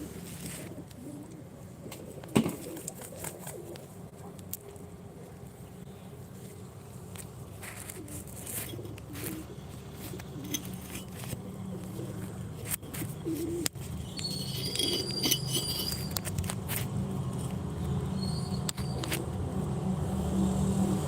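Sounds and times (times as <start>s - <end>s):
high bird chirps: 14.0s - 16.1s.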